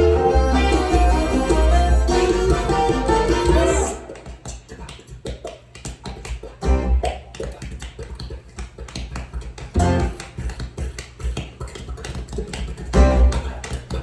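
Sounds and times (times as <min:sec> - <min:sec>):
music over pa speakers: 0:00.0 - 0:04.5, 0:09.8 - 0:10.3, 0:12.9 - 0:14.0
deep bass hits: 0:09.8 - 0:10.2.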